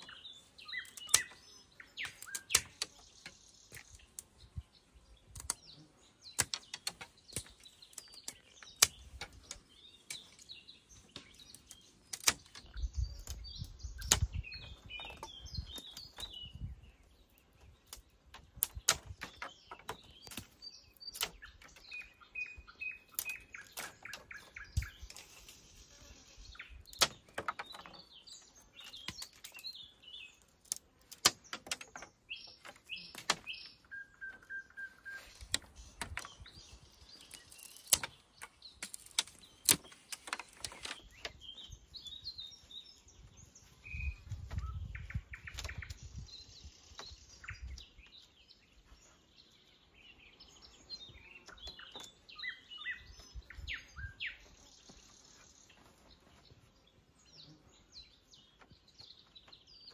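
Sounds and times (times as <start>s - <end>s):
songbirds chirping and trilling: 0.0s - 59.9s
sharp clicks and knocks: 6.4s - 10.4s, 11.1s - 13.4s, 17.9s - 21.9s, 26.9s - 28.0s, 30.6s - 33.6s, 35.4s - 36.6s, 37.2s - 41.4s.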